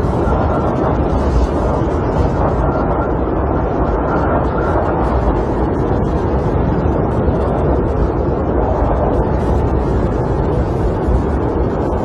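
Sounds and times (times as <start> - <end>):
snowstorm wind low rumble: 0.0 - 12.0.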